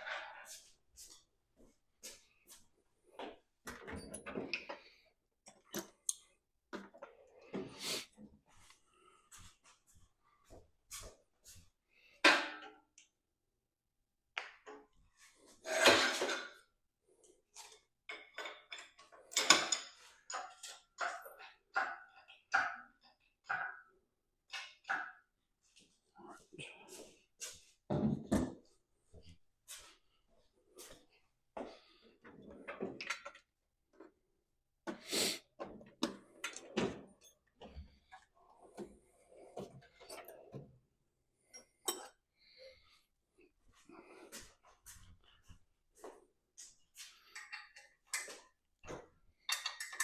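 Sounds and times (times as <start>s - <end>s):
metal tools clinking and clattering: 18.1s - 22.8s, 41.5s - 42.2s, 49.4s - 50.0s.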